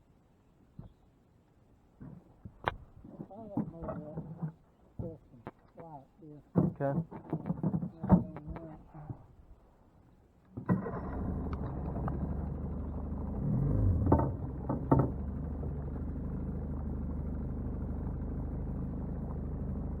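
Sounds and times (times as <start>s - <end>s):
boat motor running: 10.8s - 20.0s.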